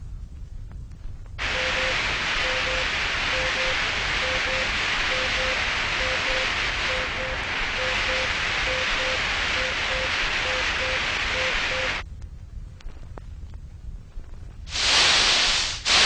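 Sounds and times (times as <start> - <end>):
loud steady hiss: 1.4 - 12.0, 14.7 - 16.0
short low beeps: 1.5 - 12.0.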